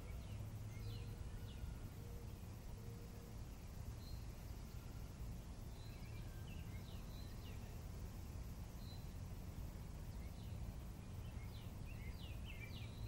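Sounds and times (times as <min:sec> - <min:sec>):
faint birdsong chirps: 0:00.0 - 0:13.0.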